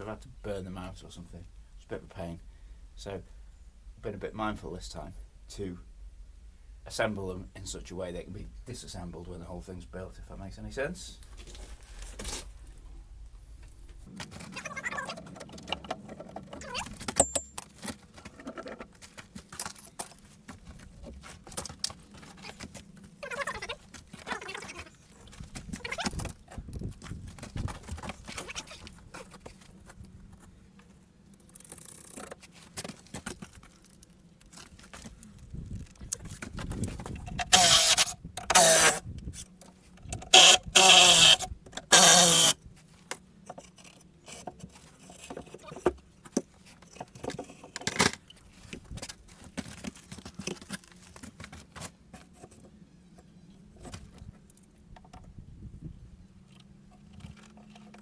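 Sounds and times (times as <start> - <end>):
wood and tools clattering: 14.1 - 35.2, 35.8 - 55.3
cordless drill backing out screws: 37.3 - 39.0, 40.2 - 42.6.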